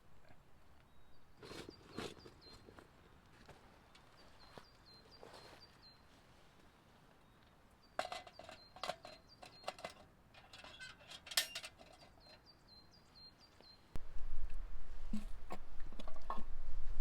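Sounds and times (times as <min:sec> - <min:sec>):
small birds chirping: 0:00.8 - 0:02.9, 0:03.9 - 0:06.1, 0:07.2 - 0:10.0, 0:11.8 - 0:14.0
low rumble: 0:14.0 - 0:17.0.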